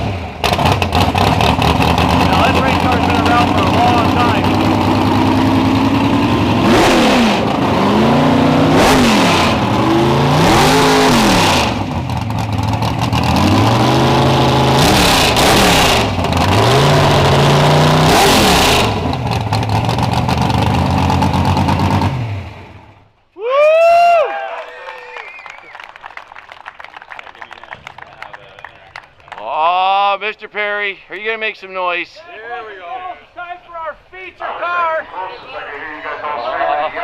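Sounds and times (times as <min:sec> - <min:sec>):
race car engine revving: 0:00.0 - 0:23.0.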